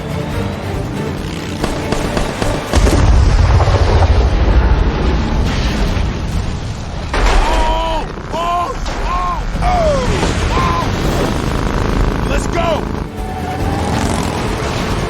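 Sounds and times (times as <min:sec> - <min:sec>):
film score: 0:00.0 - 0:15.0
heavy explosion rumbling: 0:01.7 - 0:12.3
high wavering tones: 0:10.8 - 0:15.0.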